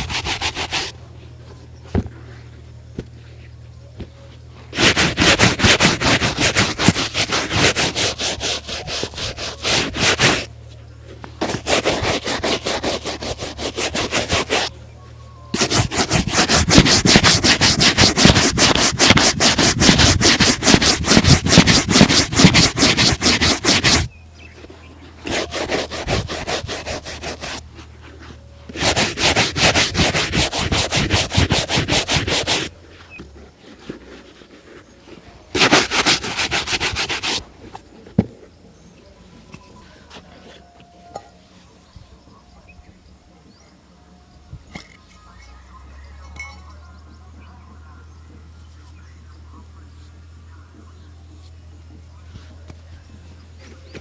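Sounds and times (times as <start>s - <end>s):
shoe being buffed by hand: 0.0s - 1.0s, 4.7s - 10.5s, 11.3s - 14.7s, 15.6s - 37.4s.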